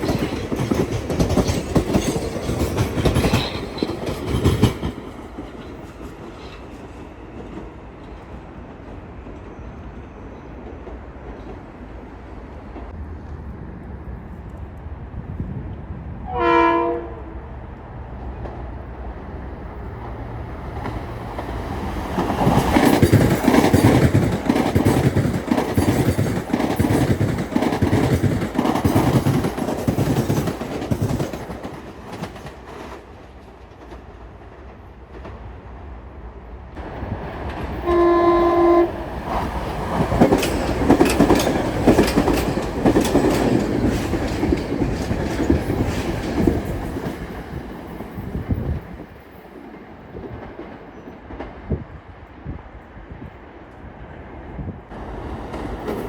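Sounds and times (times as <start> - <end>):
train wheels clacking over rail joints: 0.0 - 7.7, 20.7 - 34.0, 37.4 - 51.5
train horn blast: 16.2 - 17.5, 37.8 - 39.0.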